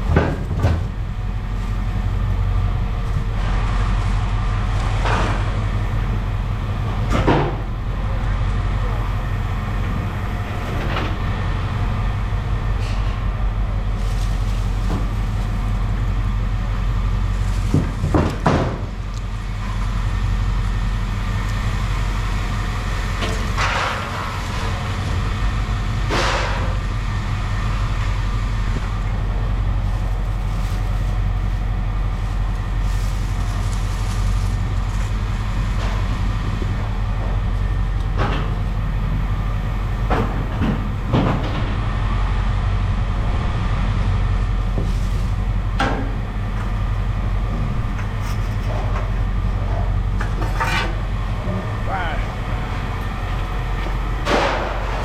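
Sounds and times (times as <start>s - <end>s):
machinery rumbling: 0.0s - 55.0s
scrap metal clattering: 44.8s - 51.7s.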